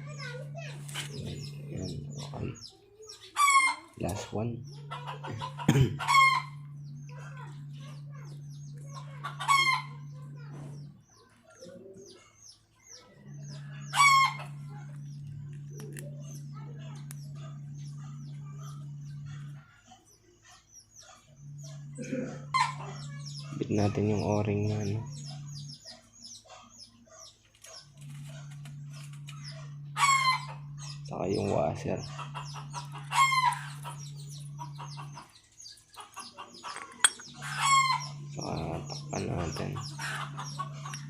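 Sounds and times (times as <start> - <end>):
low hum: 0.0 - 2.7, 4.0 - 11.2, 13.1 - 19.8, 21.2 - 25.9, 27.9 - 35.7, 36.8 - 41.0
chickens clucking: 0.0 - 41.0
small birds chirping: 0.0 - 41.0
chicken squawk: 3.3 - 4.0, 4.9 - 6.6, 9.2 - 10.0, 13.8 - 14.6, 22.4 - 23.6, 29.4 - 30.7, 32.0 - 34.0, 37.4 - 38.2, 39.8 - 40.9.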